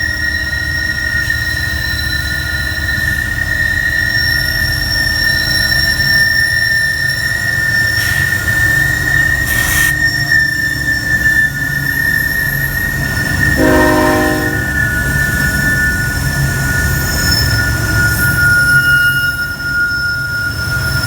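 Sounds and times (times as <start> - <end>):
low rumble of freight cars: 0.0 - 21.0
train wheel squeal: 0.0 - 21.0
train horn blast: 13.4 - 15.3.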